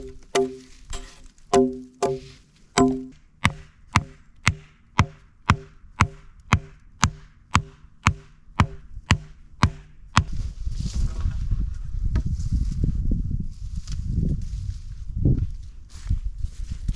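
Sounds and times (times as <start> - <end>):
sharp knocks with low ring: 0.0 - 10.4.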